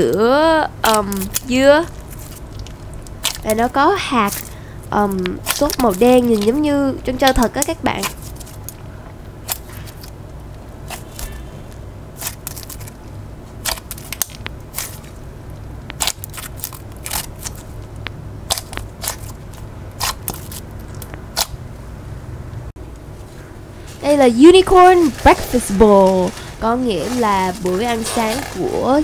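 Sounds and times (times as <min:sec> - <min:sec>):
low steady hum: 0:00.0 - 0:29.0
slime crackling pops: 0:00.8 - 0:08.7, 0:15.9 - 0:17.6.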